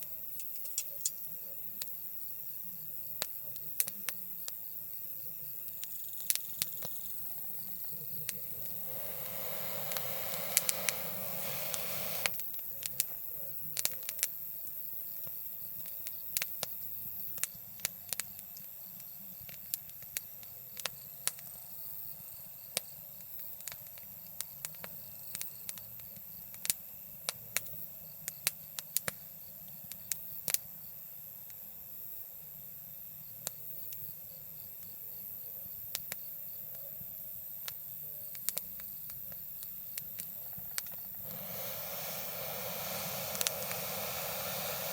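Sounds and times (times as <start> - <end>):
campfire crackling and popping: 5.8 - 13.2, 38.4 - 44.9
rushing sound: 41.2 - 44.9.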